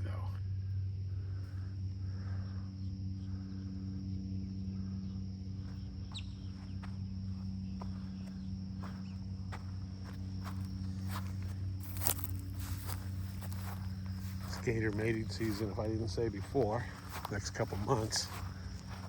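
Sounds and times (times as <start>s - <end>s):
insects trilling: 0.0s - 19.0s
low hum: 0.0s - 19.0s
footsteps on trail: 5.6s - 19.0s.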